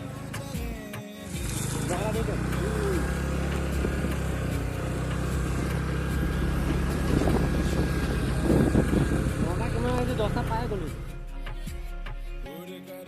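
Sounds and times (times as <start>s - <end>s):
motor scooter engine running: 0.0s - 11.2s.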